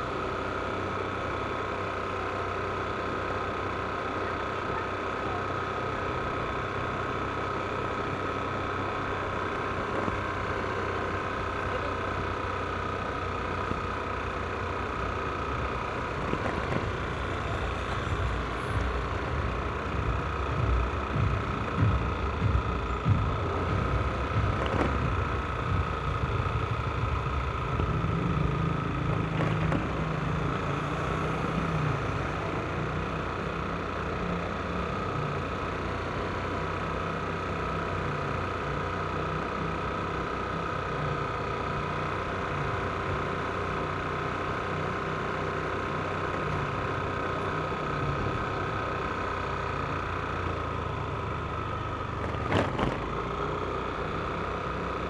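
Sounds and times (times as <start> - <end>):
scooter engine running: 0.0 - 55.0.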